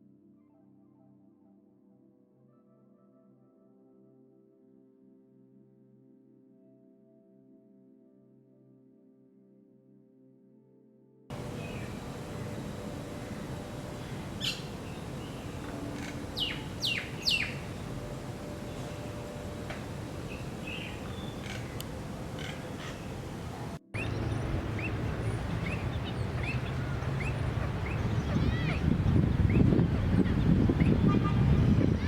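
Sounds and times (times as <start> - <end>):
bird calls sweeping downward: 11.3 - 32.0
outdoor background noise: 11.3 - 32.0
bird short chirps: 11.4 - 31.1.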